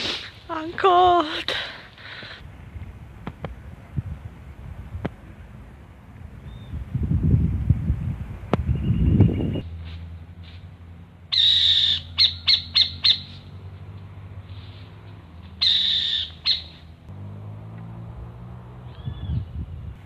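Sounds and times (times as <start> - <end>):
bird harsh scratchy calls: 11.3 - 13.5, 15.5 - 16.9.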